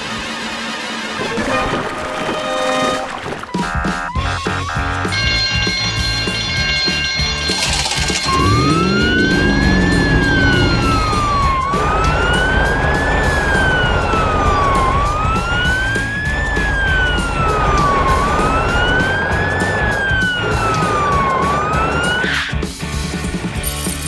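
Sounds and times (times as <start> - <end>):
background music with steady beat: 3.5 - 24.0
police siren wailing: 7.0 - 22.5.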